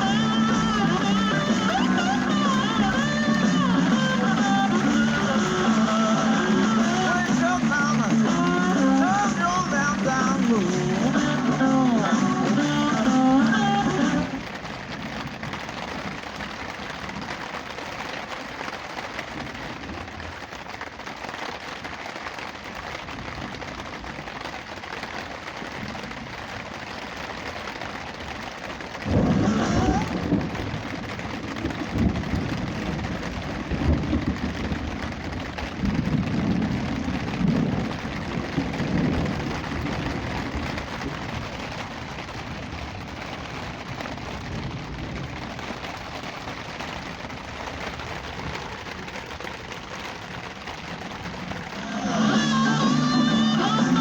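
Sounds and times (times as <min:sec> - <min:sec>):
thunder rumbling: 0:00.0 - 0:17.3, 0:28.2 - 0:54.0
rain falling: 0:00.0 - 0:54.0.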